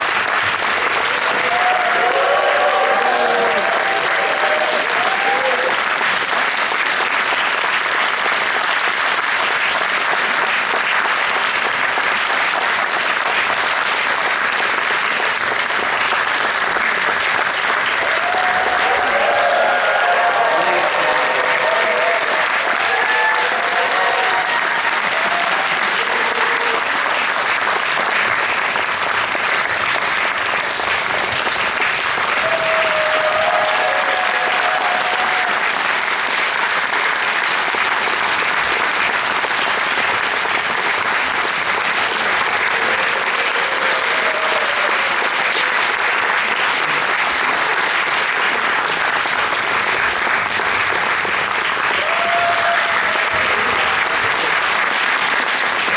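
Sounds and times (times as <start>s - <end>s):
audience applauding: 0.0s - 55.9s.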